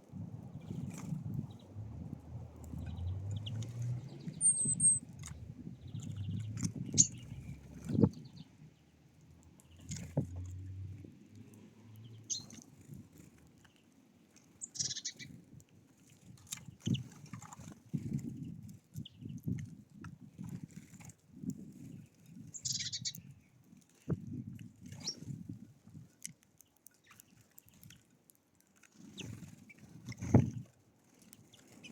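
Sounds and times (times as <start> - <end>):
small birds chirping: 0.2 - 19.6, 21.7 - 24.2, 24.9 - 25.4, 26.6 - 28.2, 28.9 - 31.9
high bird chirp: 2.8 - 8.5, 12.0 - 12.6, 14.6 - 15.3, 22.6 - 23.2.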